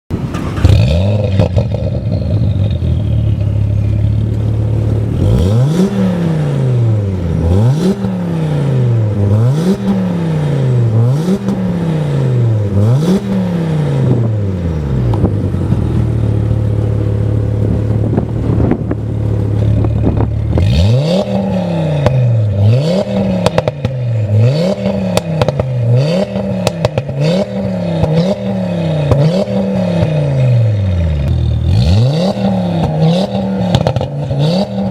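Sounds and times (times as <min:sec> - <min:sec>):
car engine revving and idling: 0:00.1 - 0:34.9
exhaust crackles and pops: 0:00.2 - 0:05.6, 0:15.0 - 0:28.4, 0:29.0 - 0:31.8, 0:32.7 - 0:34.9.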